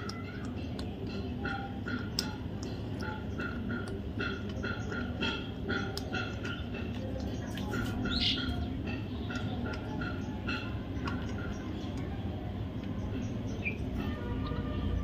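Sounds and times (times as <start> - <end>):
budgerigars chirping: 7.8 - 8.7.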